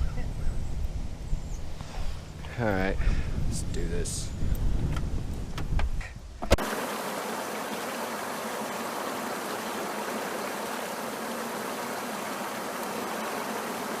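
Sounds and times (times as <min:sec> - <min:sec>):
creek water rushing: 0:06.6 - 0:14.0.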